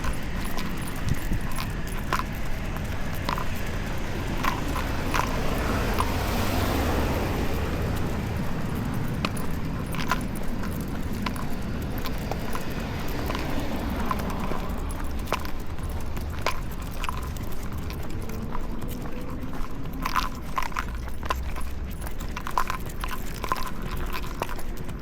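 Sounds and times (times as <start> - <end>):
dog leash jingling: 0.0 - 25.0
low rumble of street traffic: 0.0 - 25.0.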